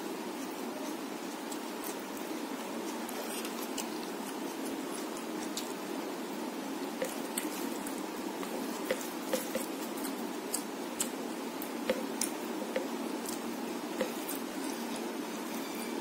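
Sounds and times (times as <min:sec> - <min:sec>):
steady background noise: 0:00.0 - 0:16.0
mouth chewing food: 0:06.8 - 0:15.1.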